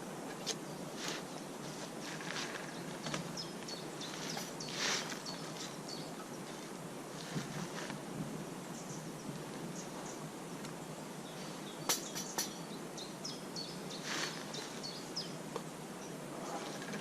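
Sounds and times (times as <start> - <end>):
outdoor noise bed: 0.0 - 17.0
small birds chirping: 0.3 - 17.0
scrape-like rustle: 4.1 - 5.7, 14.0 - 14.8.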